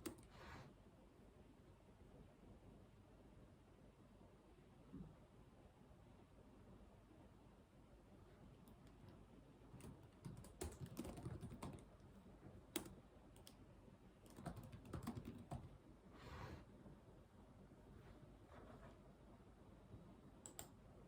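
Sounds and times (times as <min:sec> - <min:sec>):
keyboard typing: 0:09.7 - 0:12.0, 0:12.7 - 0:13.6, 0:14.2 - 0:15.8.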